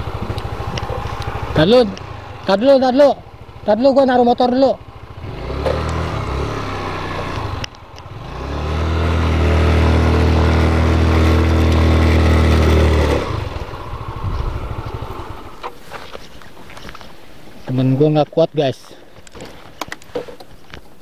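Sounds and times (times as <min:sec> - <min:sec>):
motorcycle engine revving: 0:00.0 - 0:15.7.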